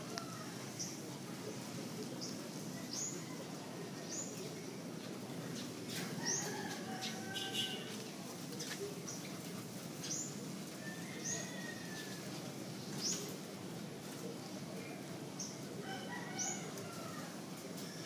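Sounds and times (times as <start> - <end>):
small birds chirping: 5.4 - 10.5, 12.7 - 13.4.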